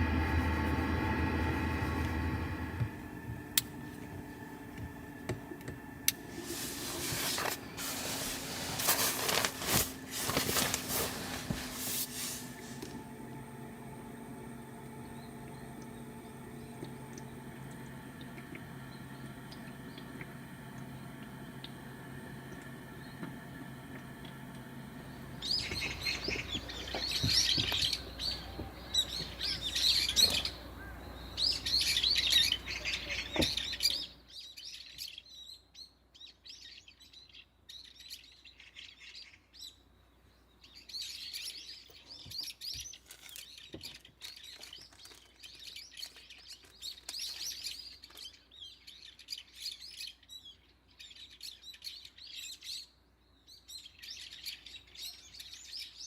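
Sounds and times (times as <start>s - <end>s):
steady low noise: 0.0s - 32.7s
small birds chirping: 6.8s - 56.0s.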